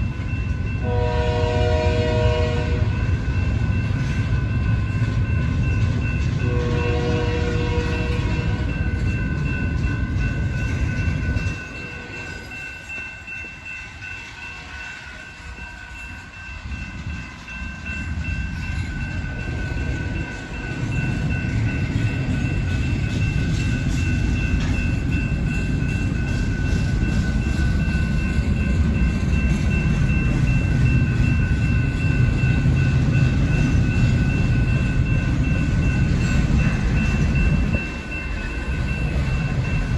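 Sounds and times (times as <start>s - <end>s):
freight train rumbling past: 0.0s - 39.9s
train wheels clattering: 0.0s - 39.9s
train horn blast: 0.8s - 3.0s, 6.4s - 8.6s.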